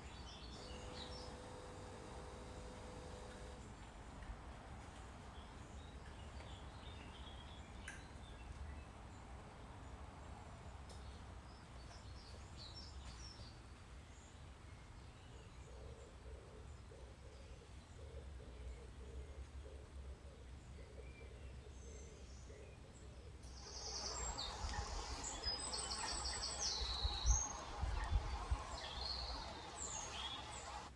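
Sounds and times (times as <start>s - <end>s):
birds chirping: 0.0s - 3.7s, 23.5s - 30.9s
wind rumble: 23.8s - 30.8s.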